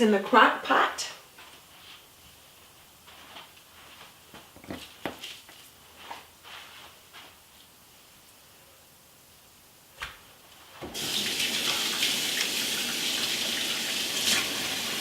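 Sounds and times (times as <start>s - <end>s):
water running into sink: 10.9s - 15.0s.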